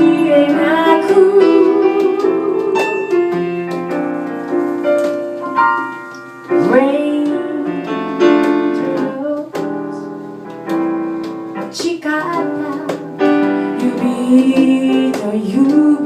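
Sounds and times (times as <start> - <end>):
person singing: 0.0 - 3.5, 6.5 - 10.0, 11.6 - 16.0
piano chords: 0.0 - 16.0.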